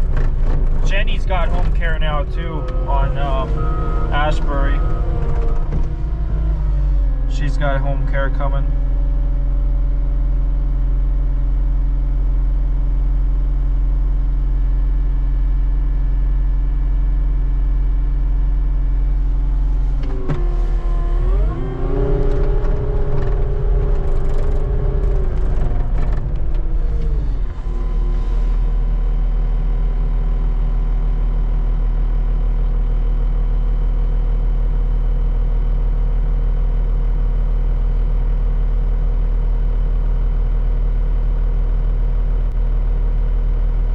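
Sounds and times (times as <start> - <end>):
skid steer engine revving: 0.0 - 9.8, 19.3 - 29.6.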